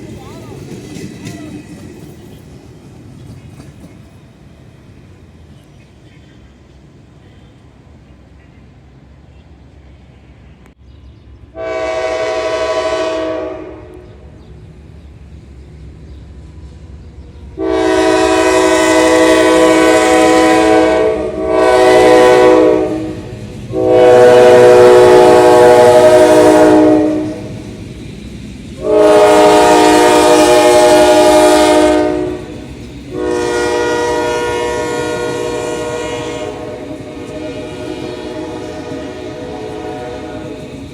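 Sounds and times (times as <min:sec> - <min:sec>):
passing train rumble: 0:00.0 - 0:40.9
locomotive air horn blasts: 0:11.6 - 0:14.2, 0:17.6 - 0:27.5, 0:28.8 - 0:40.6.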